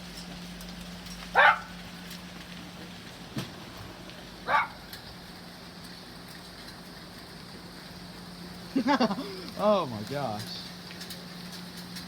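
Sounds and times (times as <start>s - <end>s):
hailstones ticking: 0.0s - 12.0s
steady low hum: 0.0s - 12.0s
dog barking: 1.3s - 1.7s, 4.5s - 4.8s.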